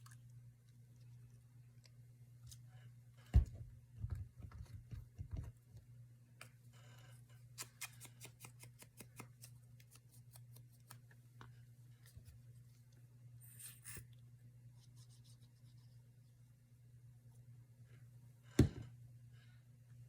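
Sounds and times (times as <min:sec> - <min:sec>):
thump on table: 0:18.6 - 0:18.9.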